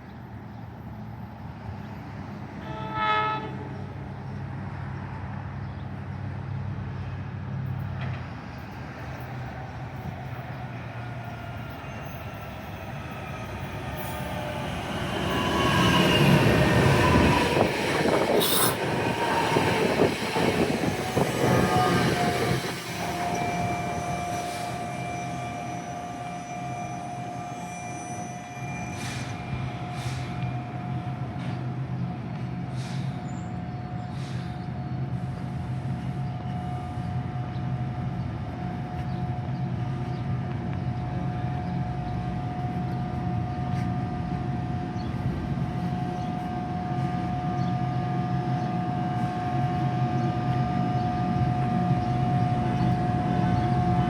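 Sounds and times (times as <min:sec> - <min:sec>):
train rolling past: 0:00.2 - 0:54.0
train horn: 0:02.6 - 0:04.0, 0:17.1 - 0:18.9, 0:20.0 - 0:28.9, 0:46.1 - 0:54.0
wheels squealing: 0:11.3 - 0:30.4.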